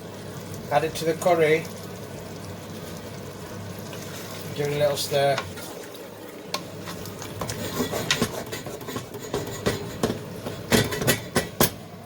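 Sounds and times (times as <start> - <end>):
spoon stirring and scraping a pot: 6.8 - 11.6.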